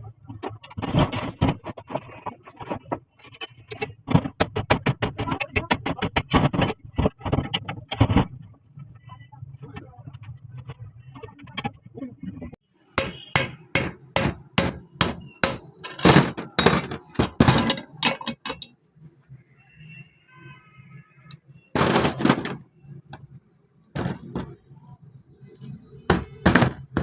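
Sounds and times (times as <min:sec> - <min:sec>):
sharp knocks on metal: 0:13.0 - 0:18.6, 0:26.1 - 0:27.0.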